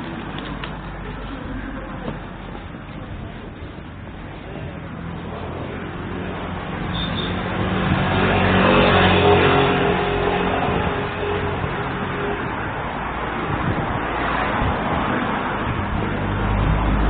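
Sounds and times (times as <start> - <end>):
car driving past: 5.0 - 17.0.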